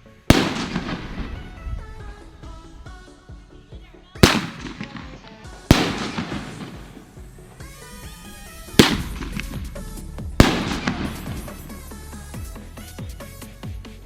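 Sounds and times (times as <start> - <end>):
fireworks booming: 0.0 - 2.6, 4.2 - 12.6
background music: 0.0 - 14.0.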